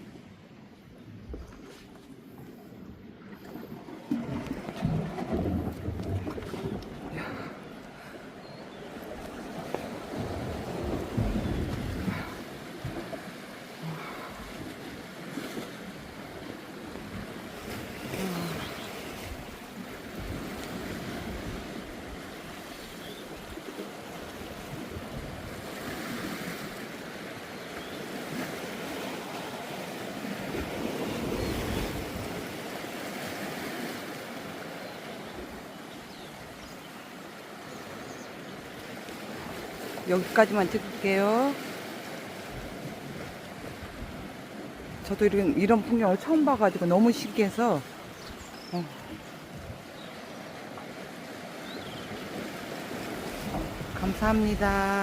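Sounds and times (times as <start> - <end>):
sea waves washing against rocks: 3.4 - 55.0
wind buffeting microphone: 9.4 - 13.2.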